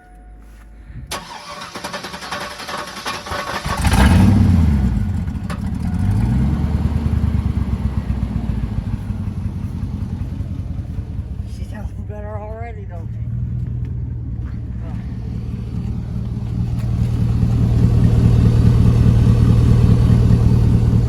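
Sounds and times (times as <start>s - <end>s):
engine cranking on starter: 1.1s - 6.4s
engine revving and idling: 1.1s - 21.0s.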